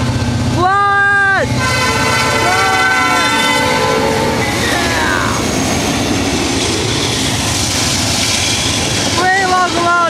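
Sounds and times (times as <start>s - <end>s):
train rumbling past: 0.0s - 10.0s
train horn: 1.5s - 5.4s.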